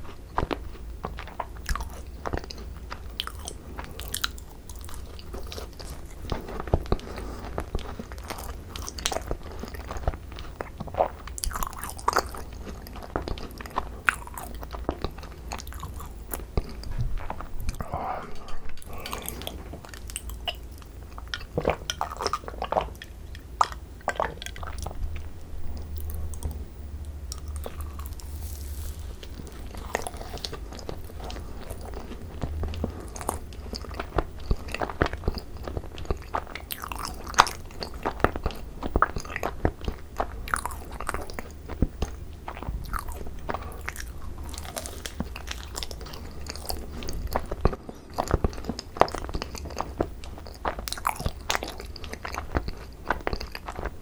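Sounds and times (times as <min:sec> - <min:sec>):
wet chewing: 0:00.0 - 0:54.0
crisp shells crackling: 0:27.3 - 0:33.1.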